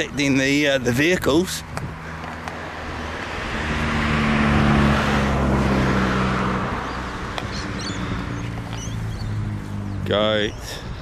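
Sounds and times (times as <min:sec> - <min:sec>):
car passing by: 0:01.8 - 0:10.2.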